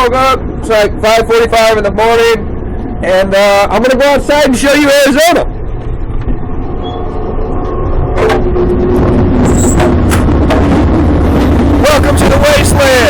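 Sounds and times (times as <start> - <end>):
freight train rumbling: 0.0 - 13.0
sharp clanks and knocks: 9.4 - 10.8.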